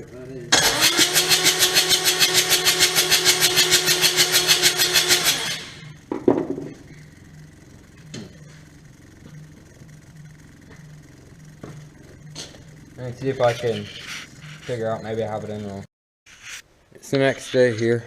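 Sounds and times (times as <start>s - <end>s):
diesel engine cranking: 0.5s - 6.0s.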